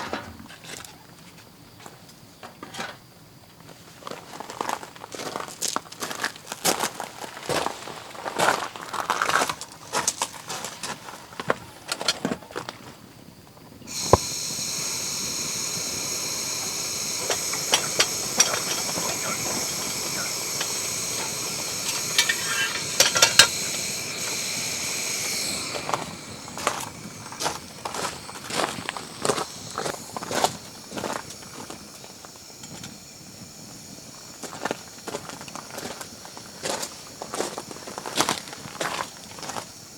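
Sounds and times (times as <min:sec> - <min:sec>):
steady hiss: 0:13.8 - 0:39.9.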